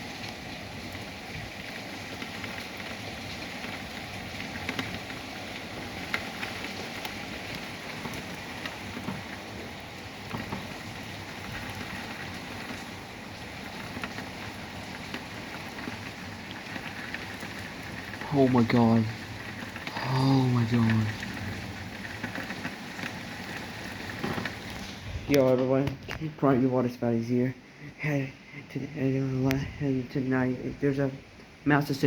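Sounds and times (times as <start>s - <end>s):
heavy rain hitting surfaces: 0.0s - 32.0s.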